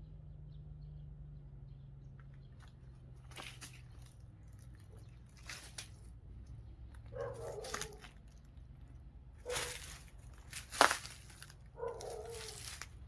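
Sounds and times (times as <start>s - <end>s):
low steady hum: 0.0s - 13.0s
crunching sounds: 2.1s - 13.0s
dog barking: 7.1s - 8.1s, 9.4s - 9.8s, 11.8s - 12.7s.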